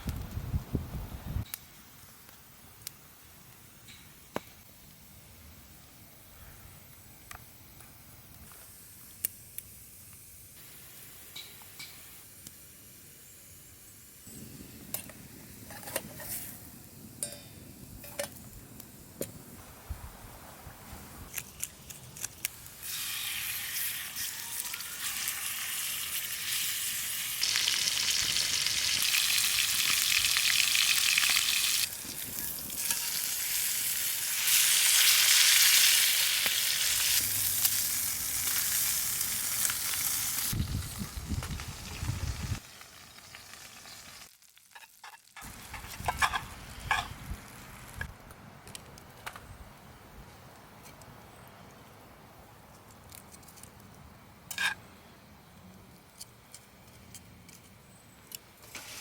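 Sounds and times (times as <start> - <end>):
food sizzling in a hot pan: 22.8 - 47.3.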